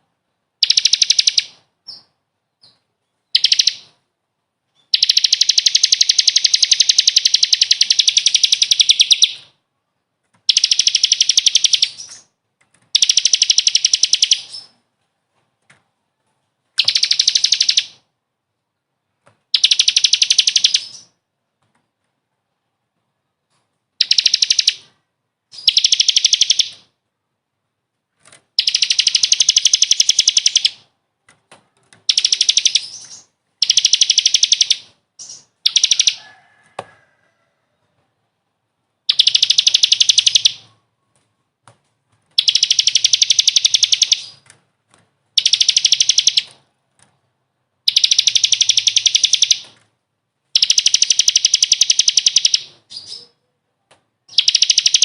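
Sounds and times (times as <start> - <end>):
songbird fast high trill: 32.2 - 36.3.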